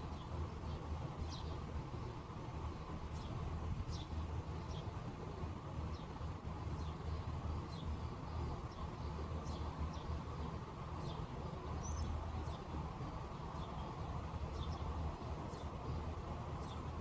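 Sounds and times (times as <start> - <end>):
small birds chirping: 6.8 - 17.0.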